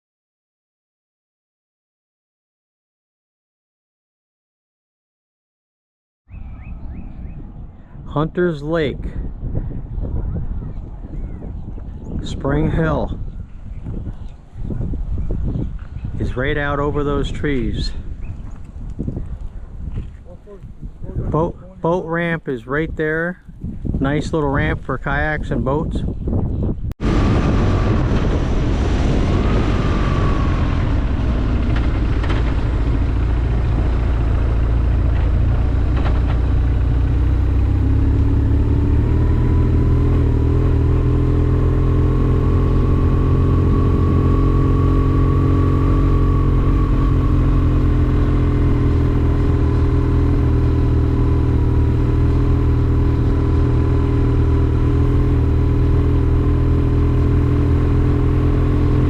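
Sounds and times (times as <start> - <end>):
motorcycle engine running: 29.6 - 59.0.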